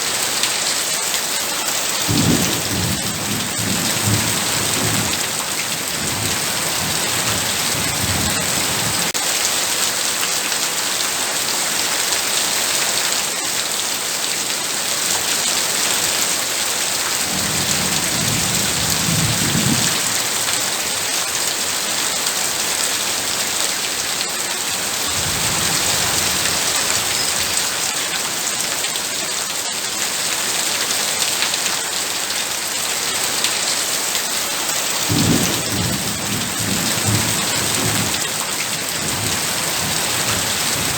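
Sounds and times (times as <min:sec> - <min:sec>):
heavy rain pouring: 0:00.0 - 0:40.9
low thunder rumbling: 0:17.3 - 0:20.4.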